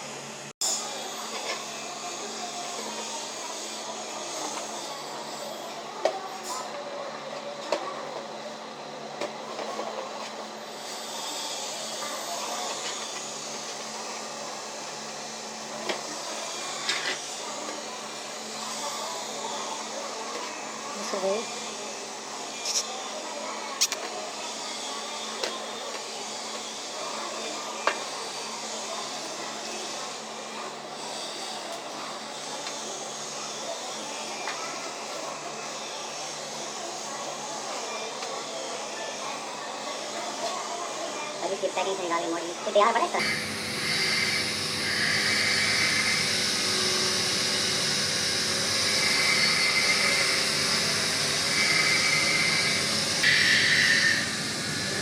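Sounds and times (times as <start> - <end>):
grinder grinding steel: 9.6 - 37.0, 37.7 - 55.0
blower rushing noise: 43.1 - 55.0.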